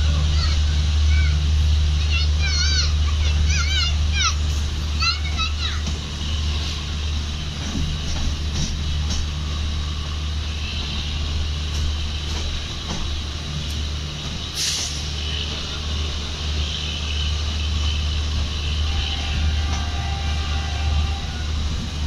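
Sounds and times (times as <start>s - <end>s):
train wheels rumbling on rail: 0.0s - 22.0s
rushing air: 14.0s - 15.2s
short sharp hiss: 14.6s - 15.1s.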